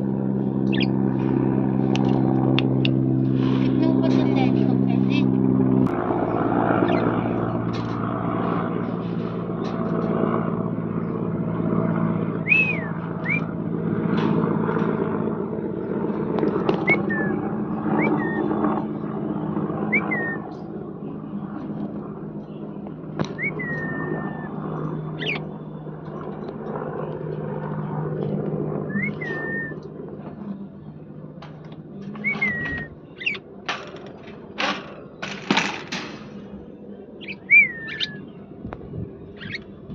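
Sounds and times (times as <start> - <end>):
steady low hum: 0.0 - 39.9
parrot whistled chirps: 12.4 - 13.5, 19.9 - 20.4, 28.9 - 29.8, 32.2 - 33.4, 37.2 - 38.2.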